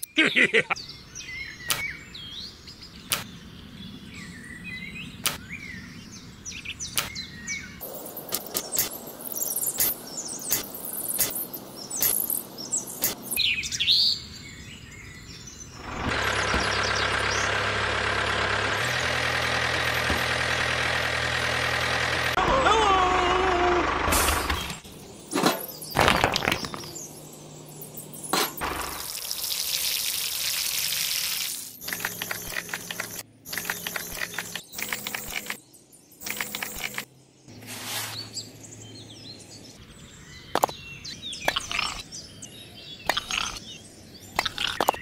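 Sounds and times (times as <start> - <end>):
tiny bricks clicking and tapping: 31.8 - 35.6, 44.4 - 45.0.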